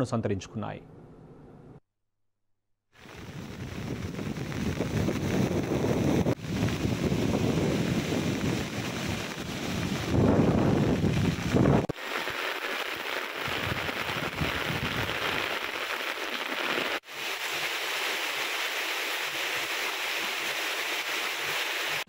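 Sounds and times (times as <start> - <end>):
wind rumble on microphone: 3.0 - 11.9, 13.4 - 15.4
heavy rain hissing on road: 3.0 - 22.0.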